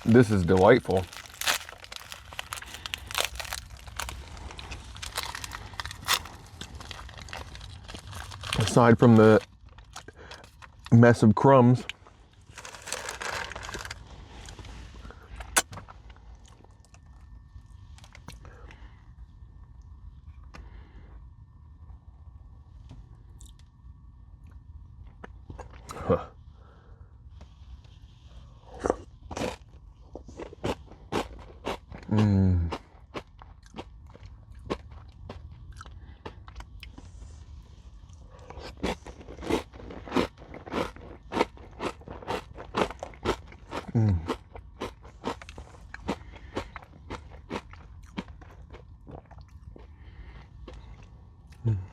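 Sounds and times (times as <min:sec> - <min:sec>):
granola bar crunching: 0:00.0 - 0:10.9, 0:12.4 - 0:14.6
chewing crunchy granola bar: 0:00.0 - 0:11.0, 0:11.8 - 0:18.9, 0:24.4 - 0:26.2, 0:28.3 - 0:51.9.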